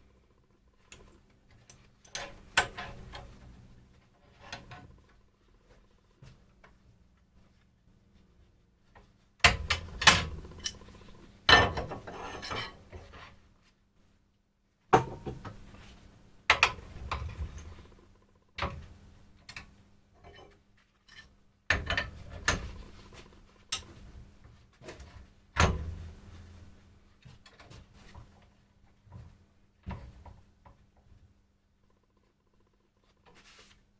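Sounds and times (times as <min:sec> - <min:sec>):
hand tools knocking on wood: 0:15.0 - 0:15.6.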